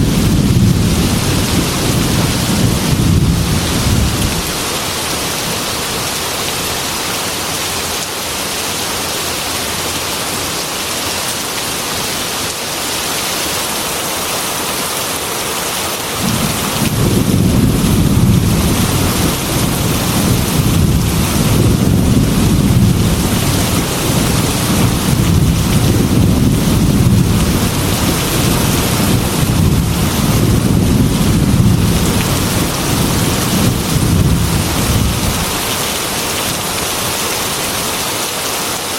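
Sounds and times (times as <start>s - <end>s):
low rumble of thunder: 0.0s - 4.6s, 16.2s - 35.8s
heavy rain on a metal roof: 0.0s - 38.9s.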